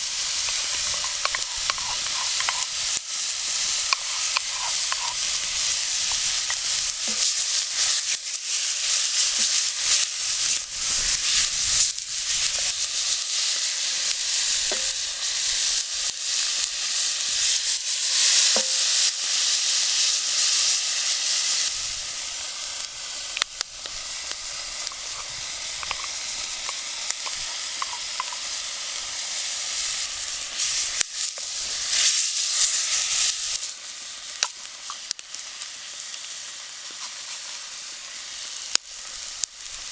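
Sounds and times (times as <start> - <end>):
utensil clicking and scraping: 0.0 - 7.3, 24.8 - 28.6
food sizzling in a pan: 0.0 - 39.9.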